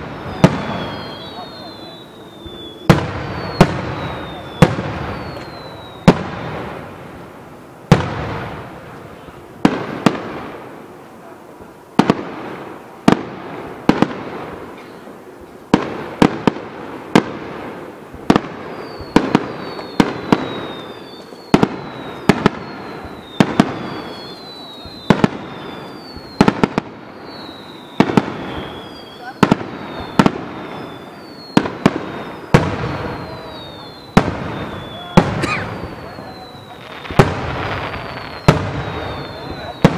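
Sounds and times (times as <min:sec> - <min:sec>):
firework whistles falling in pitch: 0:00.0 - 0:06.7, 0:18.3 - 0:39.9.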